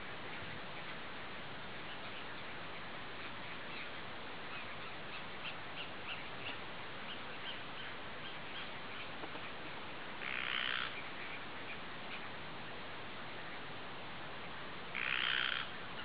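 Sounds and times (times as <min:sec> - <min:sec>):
steady outdoor hiss: 0:00.0 - 0:16.0
harsh bird squawk: 0:10.2 - 0:11.3, 0:14.9 - 0:16.0.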